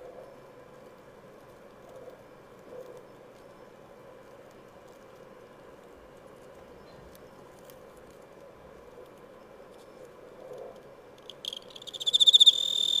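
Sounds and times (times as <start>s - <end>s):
cricket chirping: 11.2s - 13.0s.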